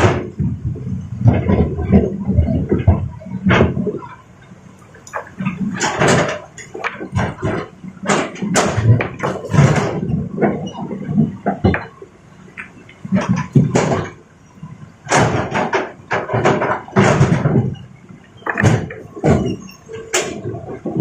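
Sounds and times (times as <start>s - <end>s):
excavator hum: 0.0s - 21.0s
rocks scraping and tumbling: 15.2s - 21.0s.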